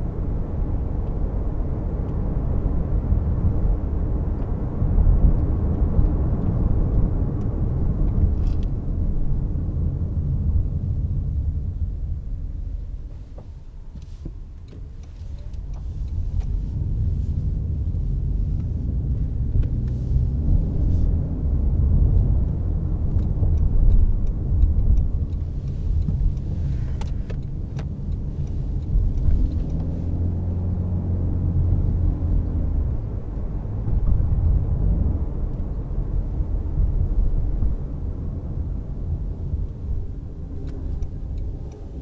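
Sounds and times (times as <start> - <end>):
car road and drivetrain rumble: 0.0 - 42.0
faint ticks: 13.4 - 17.5, 22.5 - 30.0.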